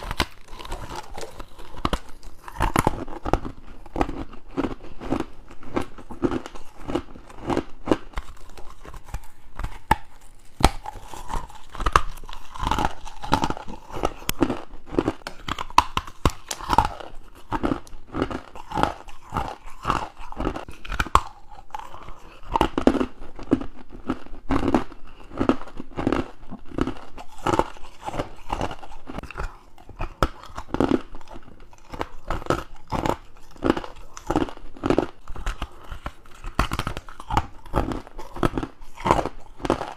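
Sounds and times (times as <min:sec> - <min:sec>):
crunching ice being chewed: 0:00.0 - 0:39.9.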